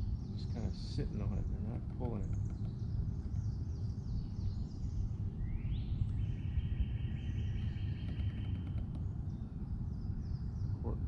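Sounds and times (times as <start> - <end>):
steady low rumble: 0.0 - 11.0
bird pulsed trill: 2.9 - 11.0.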